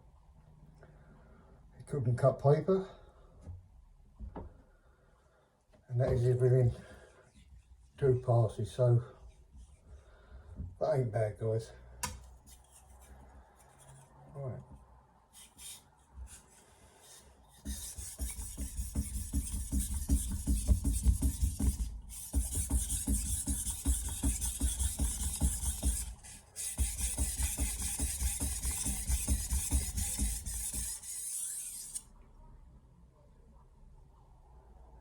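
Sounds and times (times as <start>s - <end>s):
knife scraping on whetstone: 17.6s - 32.0s.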